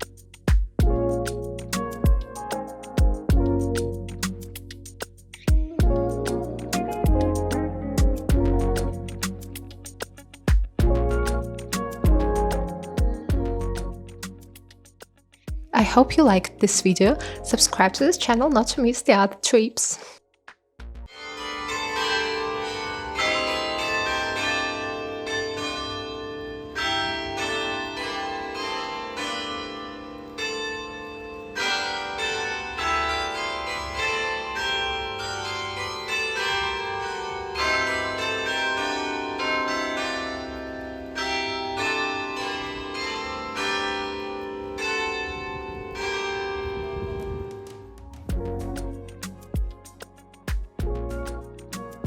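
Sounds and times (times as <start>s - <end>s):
bells ringing: 21.1s - 47.6s.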